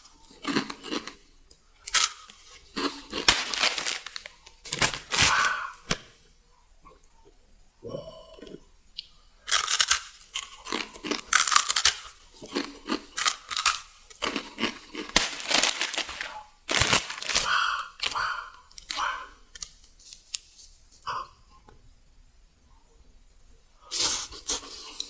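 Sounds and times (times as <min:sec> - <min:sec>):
plastic packaging tearing and crinkling: 0:01.9 - 0:06.1, 0:11.1 - 0:12.2, 0:13.2 - 0:13.9, 0:15.0 - 0:18.2.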